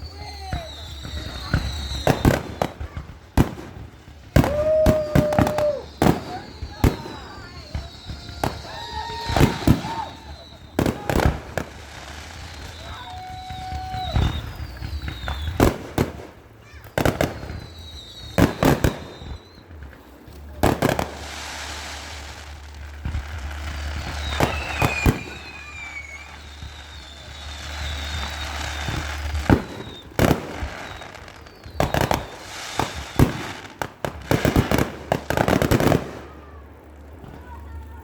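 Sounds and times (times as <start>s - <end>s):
falling firework whistles: 0.0s - 36.8s
fireworks bangs: 0.0s - 38.0s
fireworks crackling: 0.0s - 38.0s.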